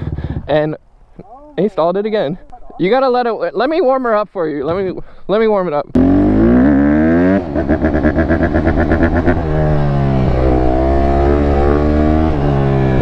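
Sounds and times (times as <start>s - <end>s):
motorcycle engine revving: 5.9s - 13.0s.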